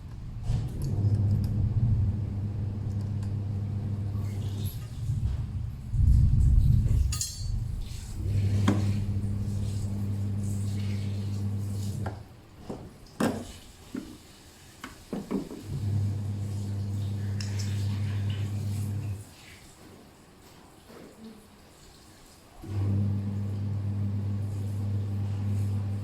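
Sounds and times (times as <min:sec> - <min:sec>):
washing machine motor humming: 0:00.0 - 0:12.3, 0:15.6 - 0:19.2, 0:22.6 - 0:26.0
loud rough rumble: 0:00.3 - 0:10.1.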